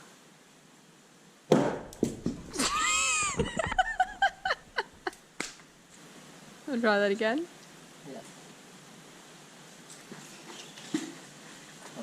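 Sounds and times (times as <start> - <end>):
magnet knocking on wooden frame: 1.5 - 2.6
person laughing: 2.5 - 5.2
person crying out: 2.6 - 3.4.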